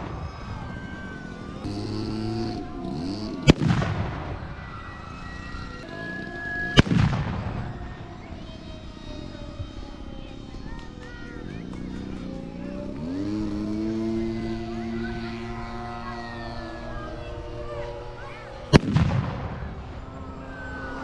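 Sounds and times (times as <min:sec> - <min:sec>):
explosion bangs with rumble: 0:18.8 - 0:19.6.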